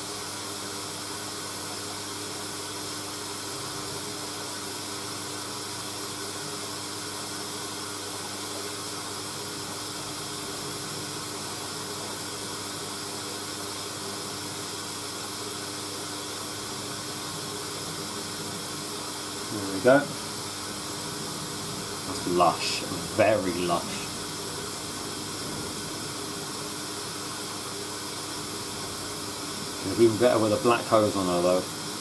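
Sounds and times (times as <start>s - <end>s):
washing machine hiss: 0.0s - 32.0s
faint hum: 16.6s - 32.0s.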